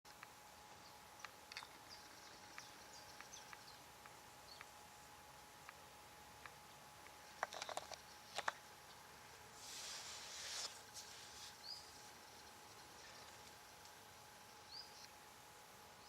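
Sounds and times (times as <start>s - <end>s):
hissing rustle: 9.4s - 14.1s.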